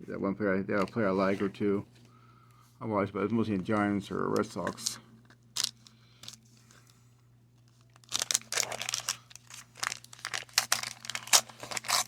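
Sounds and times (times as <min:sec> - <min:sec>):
paper wrapper crinkling and tearing: 0:07.7 - 0:12.0.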